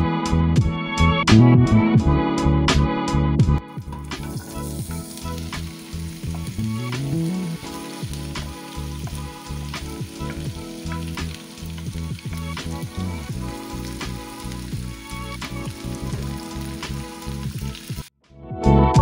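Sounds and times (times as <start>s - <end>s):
zucchini sizzling in oil: 3.8s - 18.1s.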